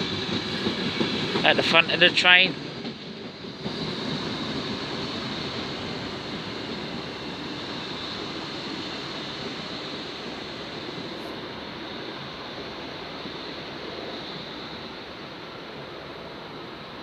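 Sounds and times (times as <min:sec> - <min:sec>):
passenger train rolling slowly: 0:00.0 - 0:17.0.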